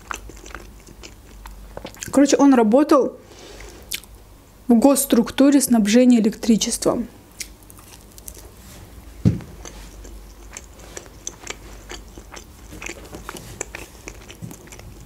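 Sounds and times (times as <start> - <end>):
biting and chewing pizza: 0.0 - 2.2, 7.4 - 15.0.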